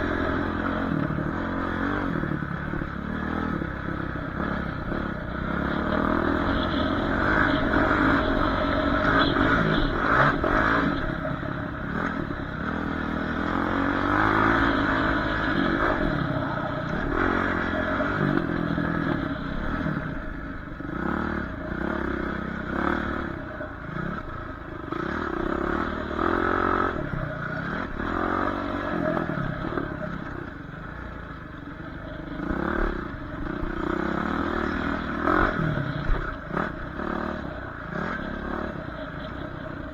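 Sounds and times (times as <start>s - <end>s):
dirt bike engine revving: 0.0s - 30.5s, 32.1s - 39.9s.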